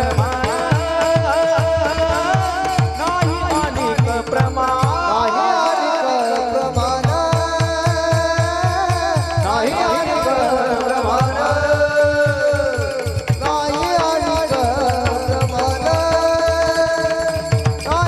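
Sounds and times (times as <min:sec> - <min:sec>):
person singing ornamented phrases: 0:00.0 - 0:18.0
hand drum beat: 0:10.9 - 0:18.0.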